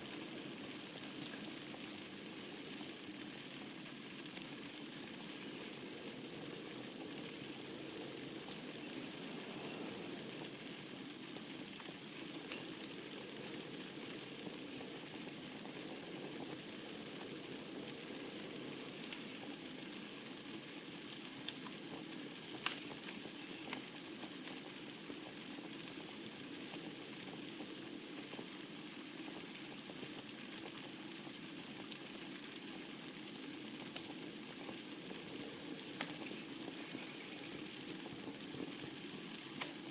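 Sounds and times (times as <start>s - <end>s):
fire crackles and pops: 0.0s - 39.9s
fire flames rushing: 4.4s - 20.9s.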